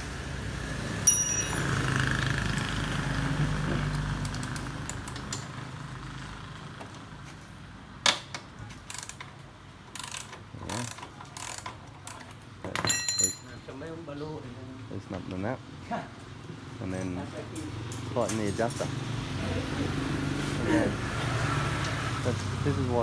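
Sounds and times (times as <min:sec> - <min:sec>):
passing vehicle engine rumbling: 0:00.0 - 0:04.9, 0:17.3 - 0:23.0
sharp metal clank: 0:01.1 - 0:01.8
hand tools clicking on metal: 0:08.8 - 0:13.4.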